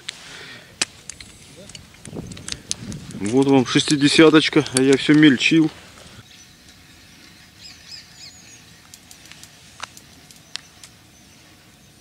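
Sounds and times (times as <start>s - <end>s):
sharp light clicks: 0.8s - 5.4s, 8.8s - 11.0s
bird chirps: 6.2s - 8.9s, 10.0s - 12.0s.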